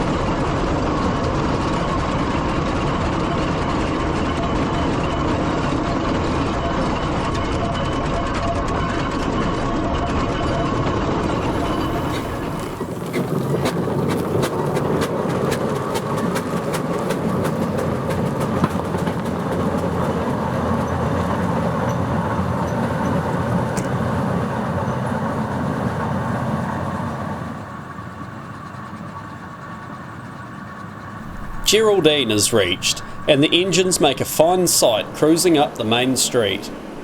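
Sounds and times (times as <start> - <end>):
steam engine rumbling: 11.3 - 27.8, 30.7 - 37.0.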